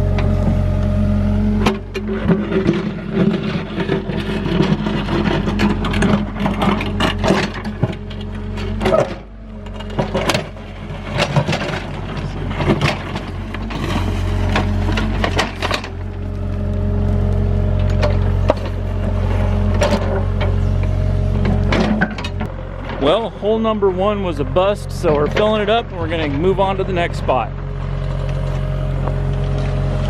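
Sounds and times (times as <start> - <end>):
excavator diesel engine running: 0.0 - 30.0
bucket scraping rocky ground: 0.1 - 30.0.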